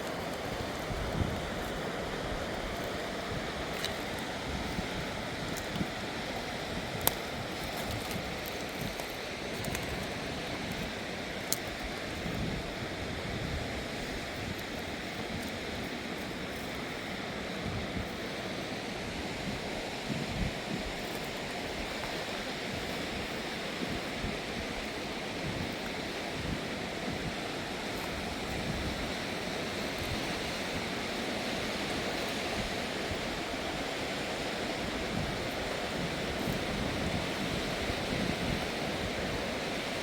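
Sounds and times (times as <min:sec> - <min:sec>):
river water rushing: 0:00.0 - 0:12.2.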